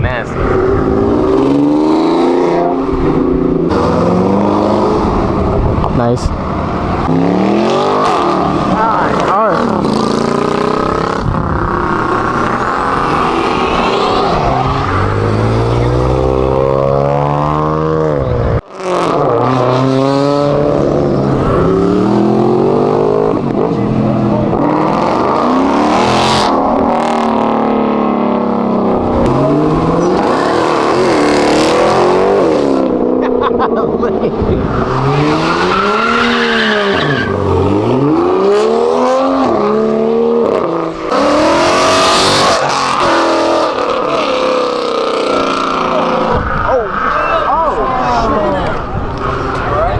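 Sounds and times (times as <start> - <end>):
car engine revving: 0.0 - 49.9
tyre squeal: 34.7 - 37.8, 46.4 - 47.8.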